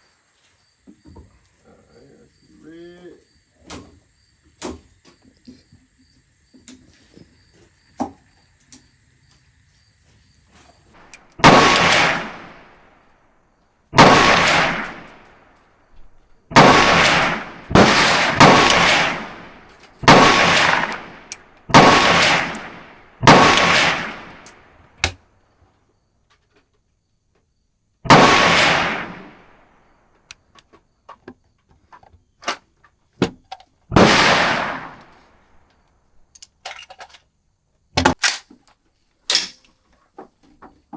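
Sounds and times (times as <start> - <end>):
rifle shots: 11.0 - 13.2, 13.9 - 25.1, 28.1 - 29.8, 33.9 - 35.5.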